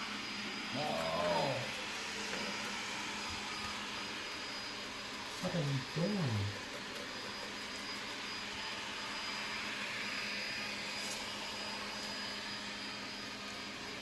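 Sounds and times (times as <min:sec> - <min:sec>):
robot vacuum humming: 0:00.0 - 0:14.0.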